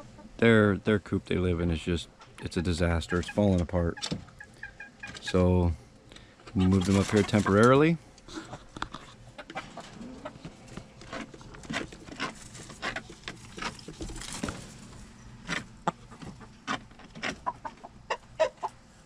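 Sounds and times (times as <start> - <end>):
hens clucking: 0.0 - 0.5, 1.8 - 5.8, 6.4 - 14.0, 15.4 - 19.0.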